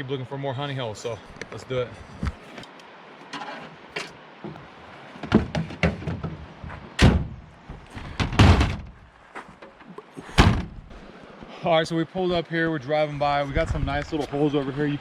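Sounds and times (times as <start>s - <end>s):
truck doors opening and shutting: 3.3s - 9.0s, 9.6s - 11.0s
heavy door thuds: 7.0s - 9.0s, 10.4s - 10.9s.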